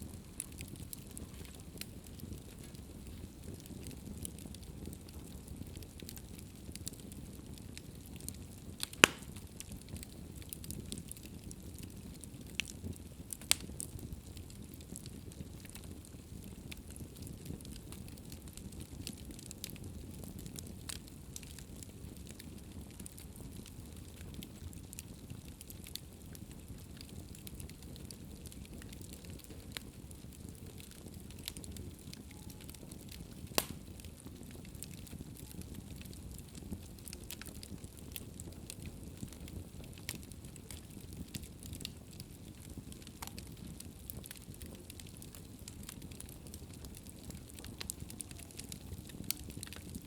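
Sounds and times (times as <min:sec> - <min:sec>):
fire crackling: 0:00.0 - 0:50.0
sharp pop from fire: 0:08.8 - 0:09.4, 0:33.5 - 0:33.9.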